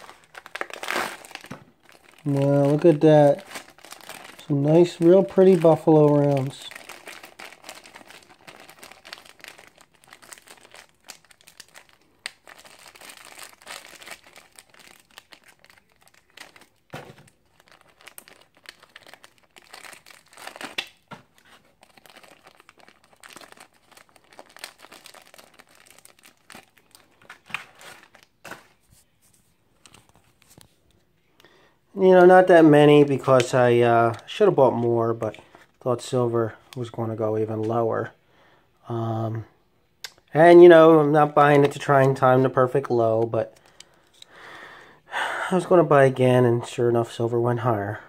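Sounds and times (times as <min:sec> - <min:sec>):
packaging crinkling and tearing: 0:00.0 - 0:28.9.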